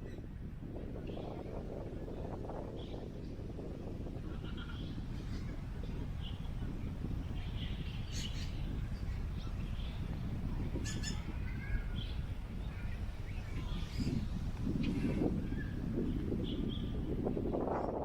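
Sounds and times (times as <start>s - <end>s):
wind on microphone: 0.0s - 18.0s
bird chirps and calls: 10.8s - 12.2s.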